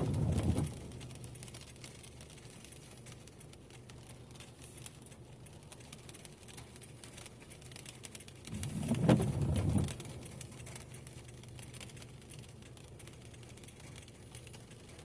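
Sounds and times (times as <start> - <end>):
low pulsing rumble: 0.0 - 3.0, 8.4 - 13.6
raindrops pattering: 0.0 - 15.0.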